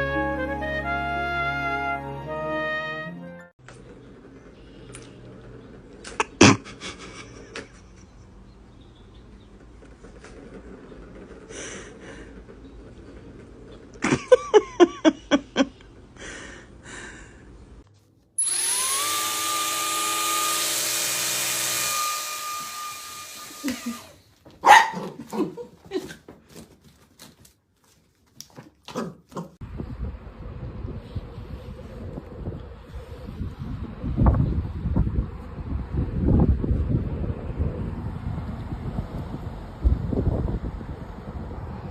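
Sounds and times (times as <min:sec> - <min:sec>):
motor noise with whine: 0:18.4 - 0:24.1
dog barking: 0:24.6 - 0:25.5
dog yelping: 0:24.6 - 0:25.6.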